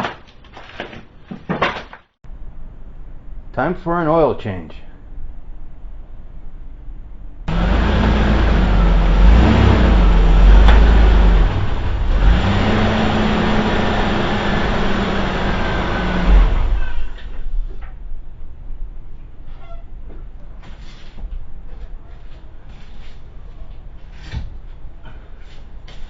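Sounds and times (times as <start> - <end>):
car engine revving: 7.5 - 17.2.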